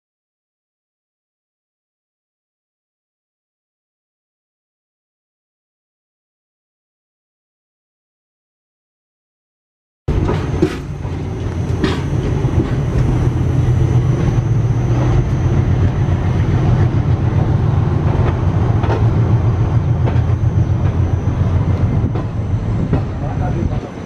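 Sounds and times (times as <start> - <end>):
wheels clicking over rail joints: 10.1 - 16.1, 18.0 - 21.1
train wheels rumbling on rail: 10.1 - 24.0.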